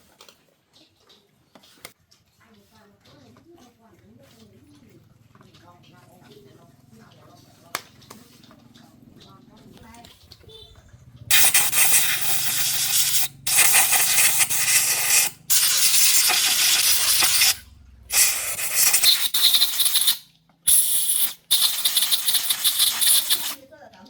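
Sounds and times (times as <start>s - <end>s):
pressurised spray hissing: 11.3s - 23.6s.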